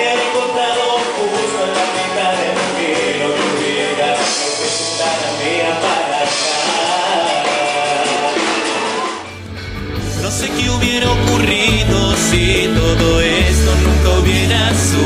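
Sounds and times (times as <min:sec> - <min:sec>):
person singing: 0:00.0 - 0:09.2, 0:10.0 - 0:15.0
live band playing pop-rock: 0:00.0 - 0:15.0.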